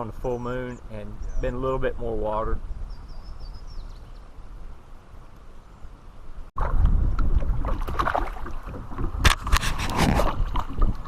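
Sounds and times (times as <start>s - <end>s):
water around a kayak: 0.0s - 11.0s
wind: 0.0s - 11.0s
sharp knocks or splashes: 6.6s - 11.0s.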